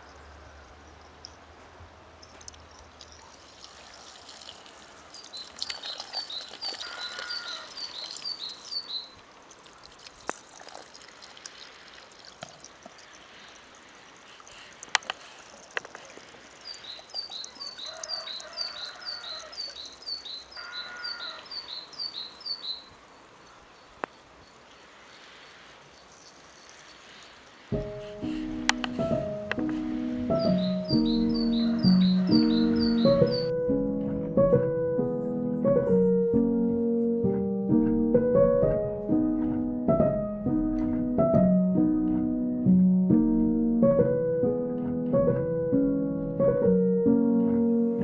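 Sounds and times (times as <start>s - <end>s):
sharp clicks: 14.4s - 16.0s, 27.8s - 30.6s.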